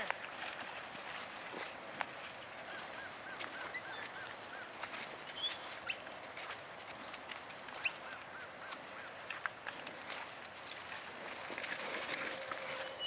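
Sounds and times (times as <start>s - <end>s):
bird calling: 2.6s - 6.1s, 7.0s - 9.3s, 12.1s - 13.0s.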